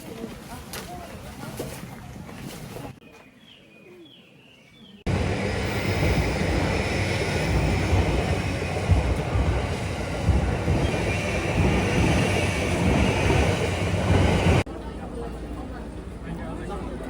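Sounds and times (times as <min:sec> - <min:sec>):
train rumbling on rails: 0:05.1 - 0:17.0.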